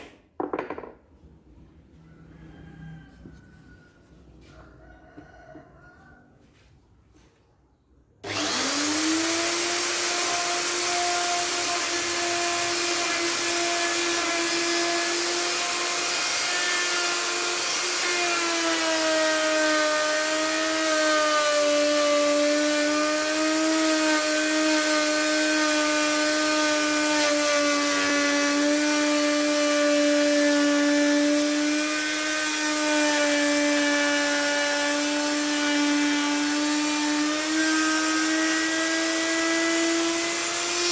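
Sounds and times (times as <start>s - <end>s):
wood-carving machine whining: 8.2s - 40.9s
hiss of cutting wood: 8.3s - 18.2s.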